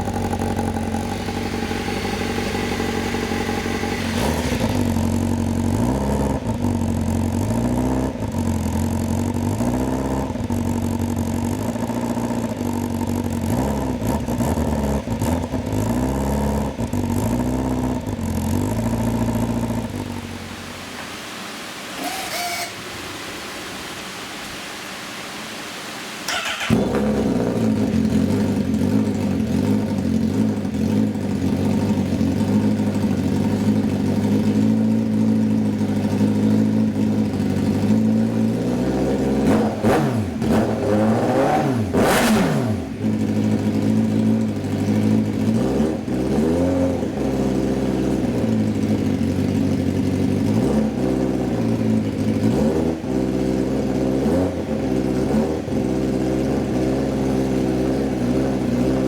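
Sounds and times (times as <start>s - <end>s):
motorcycle engine idling and revving: 0.0s - 21.0s, 26.3s - 59.0s
brief sharp noise: 22.0s - 23.0s.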